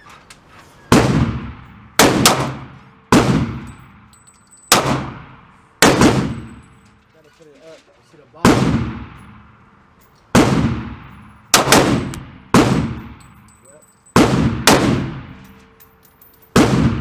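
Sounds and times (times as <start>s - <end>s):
gunshots with echoing decay: 1.0s - 4.1s, 4.7s - 6.7s, 8.4s - 9.6s, 10.3s - 13.4s, 14.2s - 15.4s, 16.6s - 17.0s.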